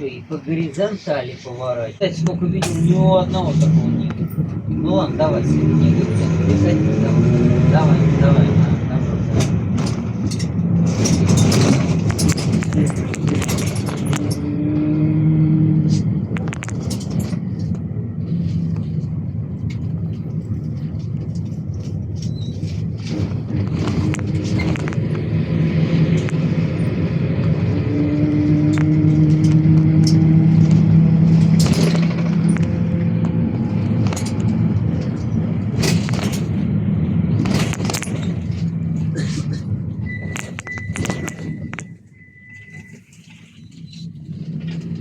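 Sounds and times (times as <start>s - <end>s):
road noise: 0.0s - 45.0s
engine drone: 2.0s - 45.0s
vehicle body rattling: 8.2s - 14.6s, 16.1s - 27.7s, 28.6s - 45.0s.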